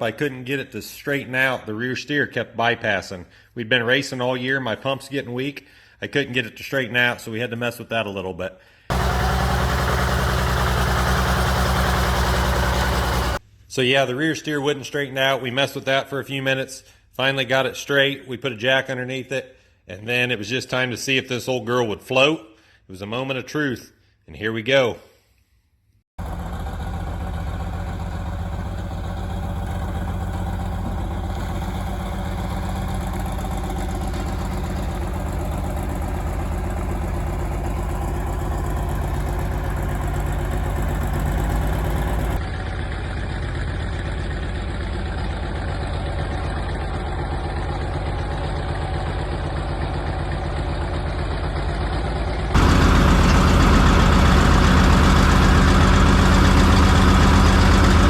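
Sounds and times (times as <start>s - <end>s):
diesel engine idling: 8.9s - 13.4s, 26.2s - 58.0s.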